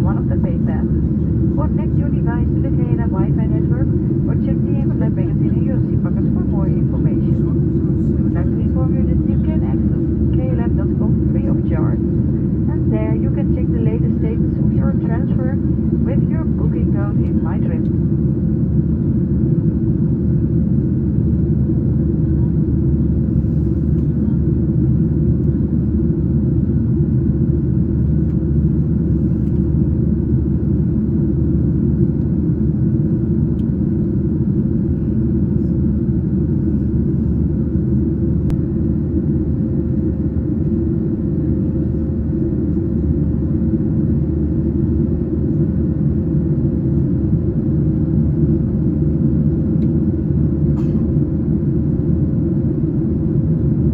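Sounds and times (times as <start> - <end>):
faint steady hum: 0.0 - 18.8
jet engines low rumble: 0.0 - 53.9.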